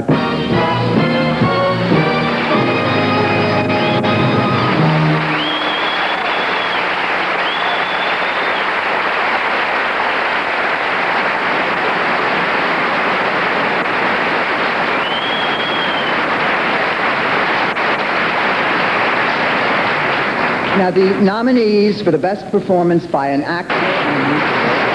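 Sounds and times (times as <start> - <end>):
audience applauding: 0.0 - 21.5, 23.7 - 24.9
high whistle: 4.4 - 8.8, 14.9 - 16.4.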